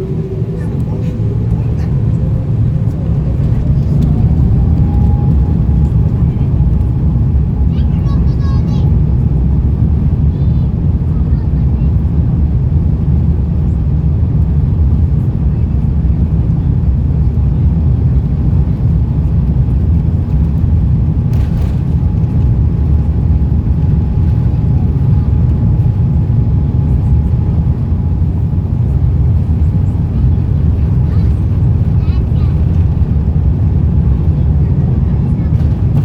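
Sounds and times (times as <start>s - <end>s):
jet engines and airflow rumble: 0.0s - 36.0s.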